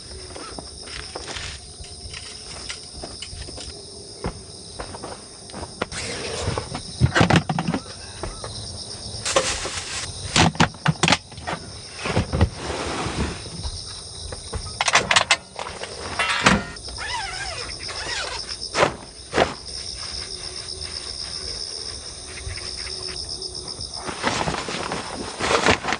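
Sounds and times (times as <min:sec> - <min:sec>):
rustling and knocking of objects: 0:00.3 - 0:16.9, 0:23.8 - 0:25.9
steady high hiss: 0:09.2 - 0:10.2.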